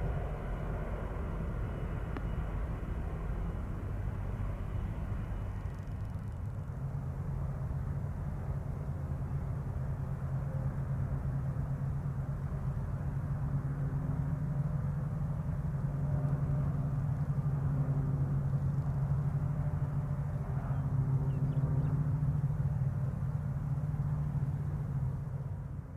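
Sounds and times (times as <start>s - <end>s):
freight train rumbling: 0.0s - 13.8s
locomotive engines droning: 0.0s - 25.9s.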